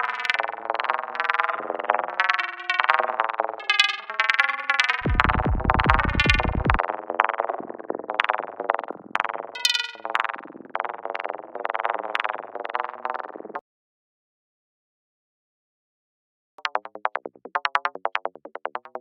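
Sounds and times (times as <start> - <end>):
deep bass tone: 5.0 - 6.8
plucky synthesizer notes: 5.0 - 13.6, 16.6 - 19.0.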